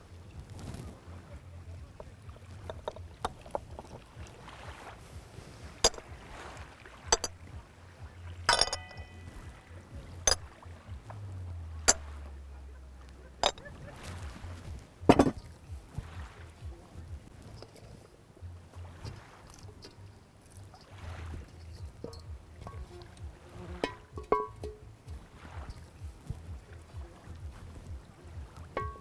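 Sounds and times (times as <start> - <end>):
low steady rumble: 0.0 - 29.0
sharp knocks and clinks: 5.8 - 6.1, 7.1 - 7.4, 8.5 - 9.3, 23.8 - 24.8, 28.8 - 29.0.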